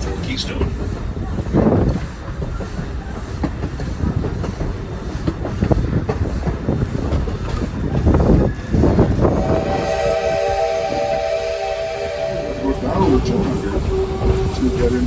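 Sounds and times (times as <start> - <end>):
train rumbling: 0.0 - 15.0
train wheels clattering on rails: 0.0 - 15.0.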